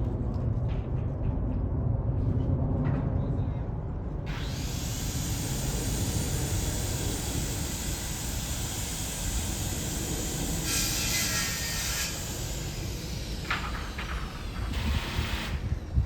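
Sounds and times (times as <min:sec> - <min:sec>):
bright hiss: 0:04.3 - 0:15.9
jet engines roaring: 0:11.8 - 0:16.0.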